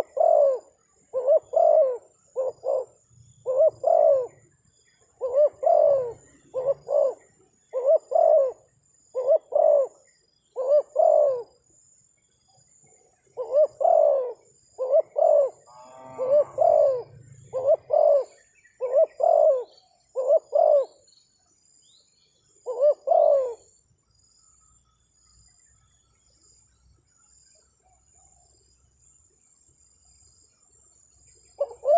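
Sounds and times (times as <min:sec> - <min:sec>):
dove cooing: 0:00.0 - 0:04.5, 0:05.1 - 0:11.6, 0:13.3 - 0:21.1, 0:22.6 - 0:23.8, 0:31.6 - 0:31.9.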